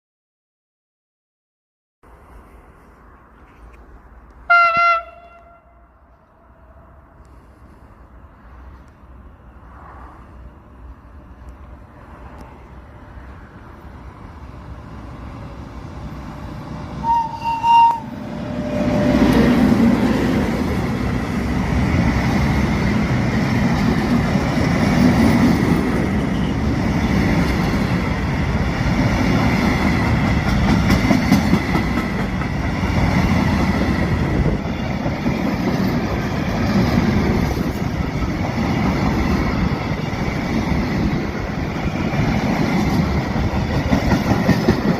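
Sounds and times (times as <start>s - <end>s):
electric locomotive rumble: 4.2s - 44.9s
train horn blasts: 4.5s - 6.6s, 17.0s - 19.3s
train wheels clattering on rails: 19.0s - 44.9s.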